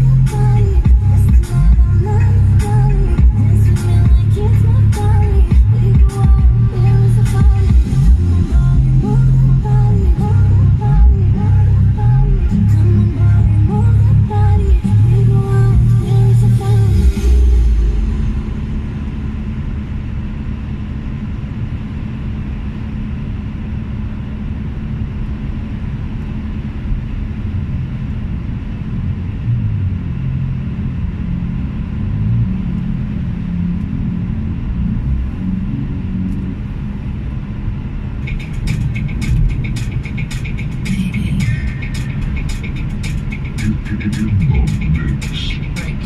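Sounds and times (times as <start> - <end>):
vehicle rumble: 0.0 - 46.0
rapid clicking: 38.2 - 46.0.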